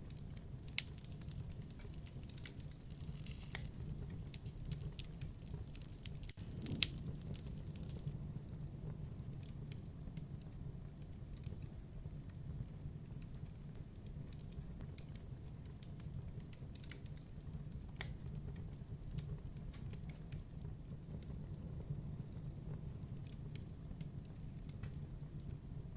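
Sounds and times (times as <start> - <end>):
wood crackling and popping: 0.6 - 8.2.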